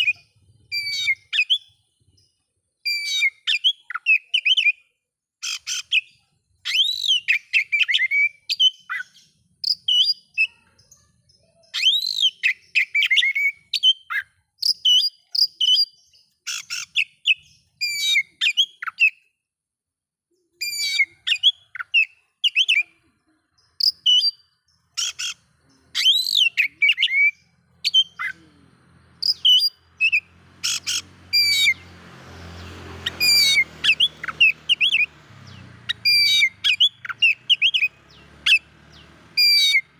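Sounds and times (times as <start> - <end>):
songbird whistling and chirping: 0.0 - 19.3, 20.5 - 23.0, 23.6 - 39.9.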